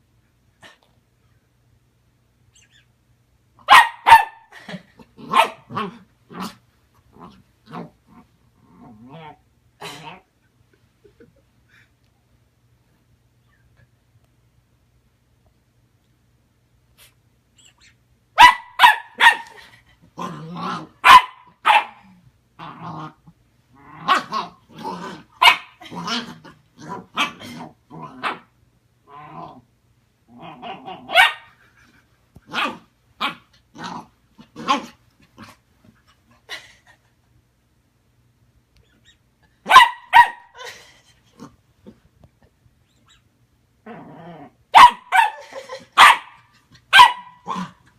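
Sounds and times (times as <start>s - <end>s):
puppy barking and growling: 3.6s - 10.3s, 18.4s - 29.7s, 30.3s - 31.8s, 32.4s - 35.6s, 39.6s - 42.0s, 43.8s - 47.9s.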